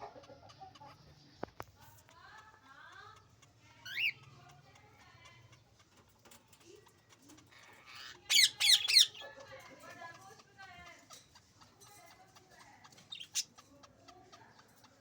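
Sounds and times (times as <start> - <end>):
baby birds cheeping: 0.2 - 15.0.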